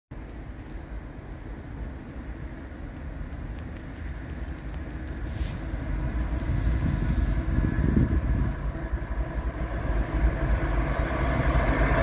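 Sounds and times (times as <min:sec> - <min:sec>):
diesel locomotives rumbling: 0:00.1 - 0:12.0
brief hiss: 0:05.2 - 0:05.8, 0:06.4 - 0:07.5.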